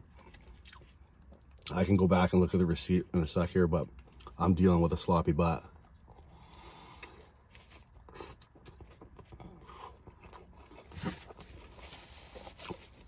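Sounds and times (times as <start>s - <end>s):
quiet chewing: 0.0s - 1.8s, 5.7s - 13.0s
biting into a burger: 5.8s - 13.0s.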